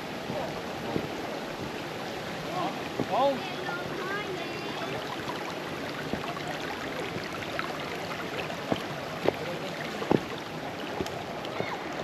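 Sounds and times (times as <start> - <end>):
brook water running over stones: 0.0 - 12.0
short sharp knocks or splashes: 8.6 - 11.6.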